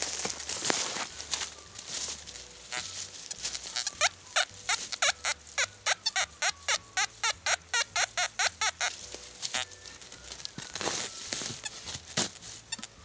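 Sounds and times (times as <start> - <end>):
bird chirping rapidly: 2.5 - 10.0.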